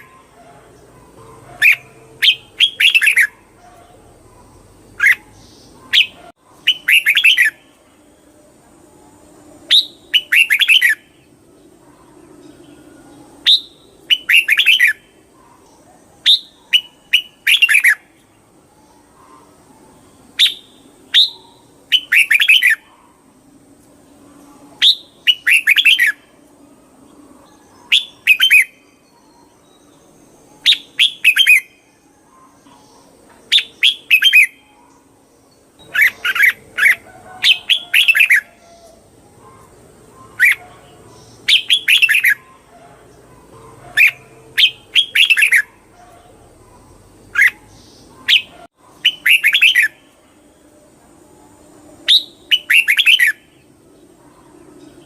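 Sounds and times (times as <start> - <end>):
bulbul chirpy song: 0.0 - 11.4, 13.3 - 15.3, 20.2 - 23.0, 24.2 - 42.7, 43.4 - 50.2, 51.2 - 53.6.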